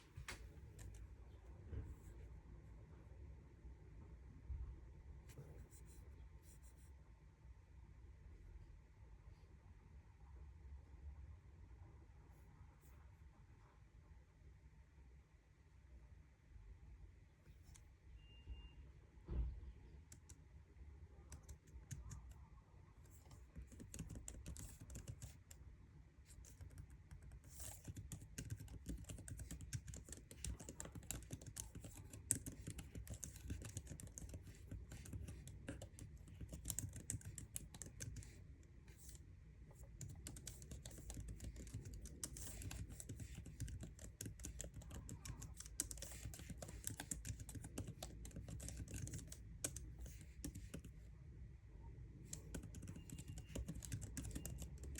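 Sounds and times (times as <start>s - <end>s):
laptop keyboard typing: 0.2s - 1.0s, 20.1s - 20.4s, 21.2s - 25.6s, 26.2s - 39.2s, 39.8s - 51.0s, 52.2s - 54.9s.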